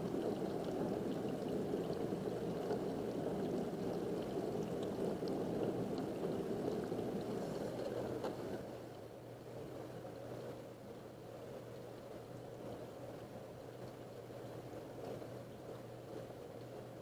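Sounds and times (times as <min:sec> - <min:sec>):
faint light ticks: 0:13.8 - 0:16.9.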